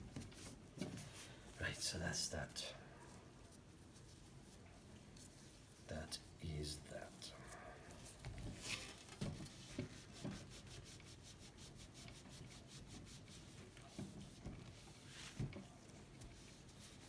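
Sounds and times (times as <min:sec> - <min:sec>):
rubbing on painted steel: 0:09.4 - 0:17.0.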